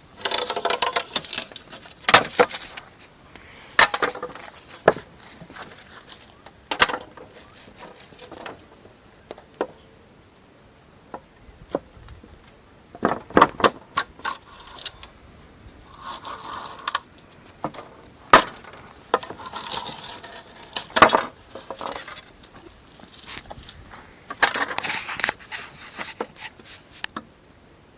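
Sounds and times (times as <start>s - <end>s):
rustling: 0.0s - 10.0s, 11.7s - 27.2s
wooden objects knocking and clinking: 0.2s - 2.9s, 3.8s - 8.7s, 17.6s - 23.6s.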